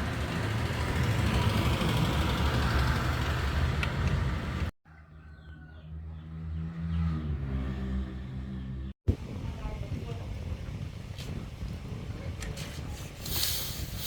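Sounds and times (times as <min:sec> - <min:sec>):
engine rough rumble: 0:00.0 - 0:04.7
steady engine hum: 0:00.0 - 0:04.7, 0:05.8 - 0:12.4.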